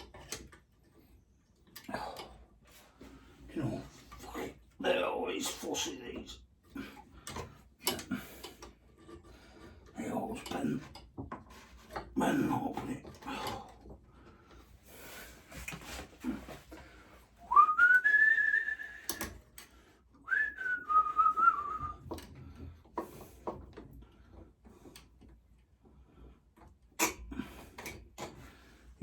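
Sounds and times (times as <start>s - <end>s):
person whistling: 17.4s - 19.3s, 20.2s - 22.0s.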